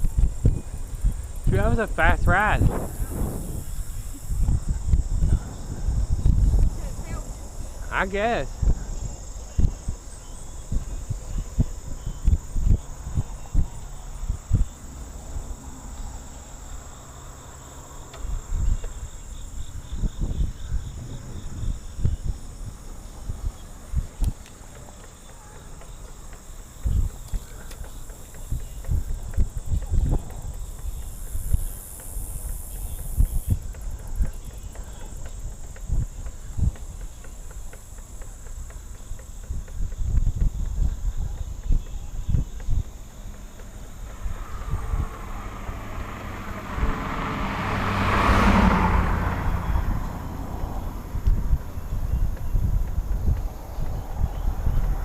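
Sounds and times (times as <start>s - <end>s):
high insect chorus: 0.0s - 55.0s
wind buffeting microphone: 0.0s - 55.0s.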